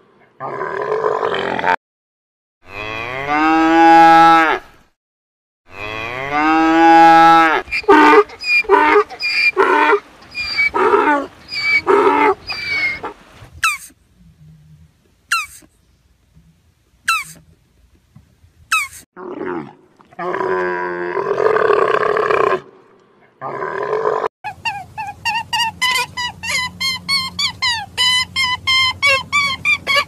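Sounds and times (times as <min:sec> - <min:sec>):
high falling chirps: 0:07.7 - 0:13.1.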